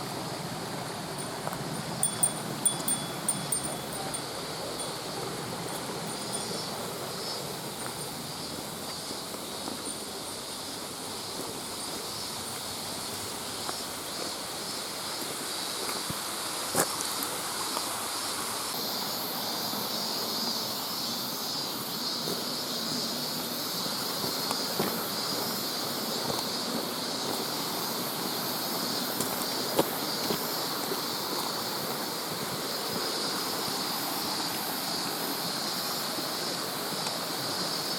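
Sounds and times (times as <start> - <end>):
mountain stream rushing: 0.0 - 37.9.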